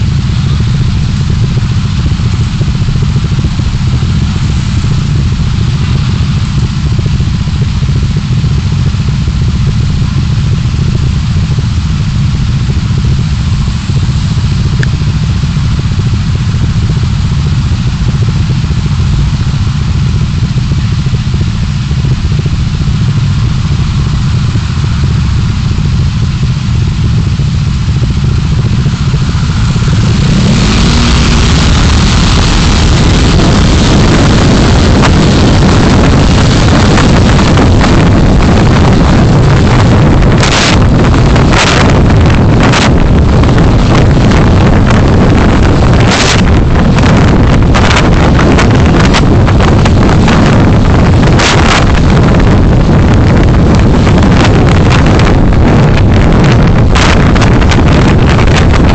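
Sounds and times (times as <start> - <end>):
car engine and road noise: 0.0 - 58.9.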